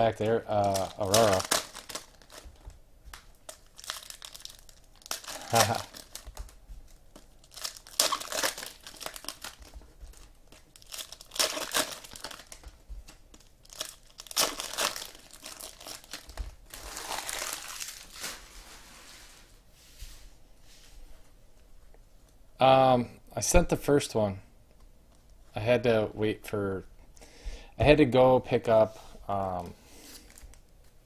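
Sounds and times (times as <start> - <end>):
card pack wrappers crinkling and tearing: 0.0 - 18.9, 29.4 - 31.0.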